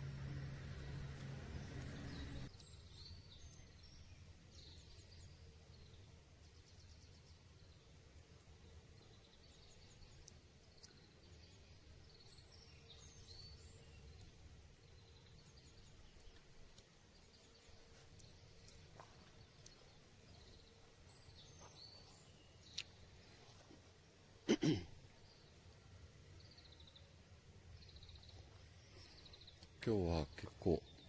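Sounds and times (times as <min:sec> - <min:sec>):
low steady rumble: 0:00.0 - 0:02.6
small birds chirping: 0:00.0 - 0:31.0.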